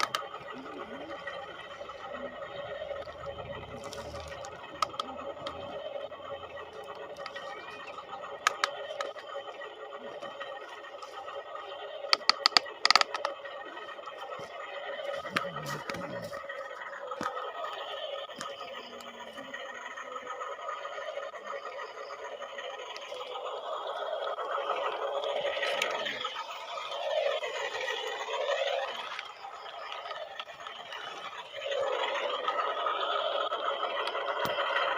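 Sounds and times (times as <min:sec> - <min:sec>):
plastic clicks and clatter: 0:00.0 - 0:00.5, 0:08.4 - 0:09.2, 0:12.1 - 0:13.4
toy electric motors whining: 0:00.0 - 0:34.9.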